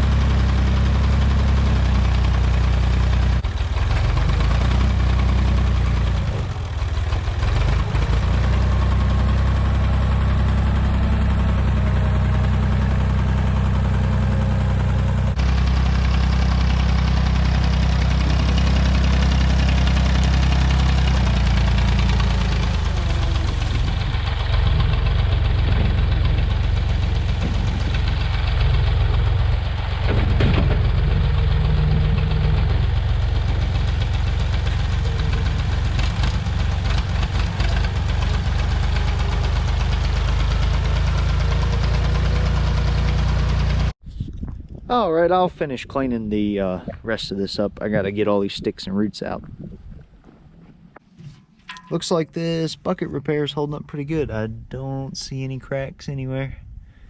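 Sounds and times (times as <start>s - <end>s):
backhoe engine running: 0.0s - 44.0s.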